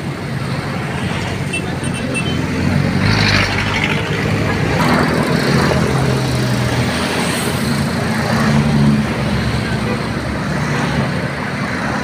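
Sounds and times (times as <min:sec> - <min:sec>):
diesel bus engine: 0:00.0 - 0:12.0.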